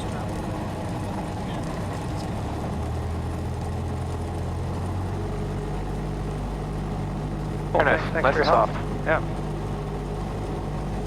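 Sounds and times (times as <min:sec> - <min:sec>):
aircraft piston engine drone: 0:05.9 - 0:11.0.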